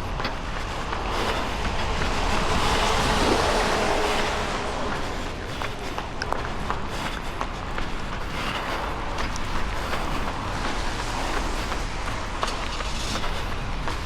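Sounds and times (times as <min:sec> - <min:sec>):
light footsteps: 0:00.0 - 0:14.0
vehicle passing by: 0:00.7 - 0:06.8.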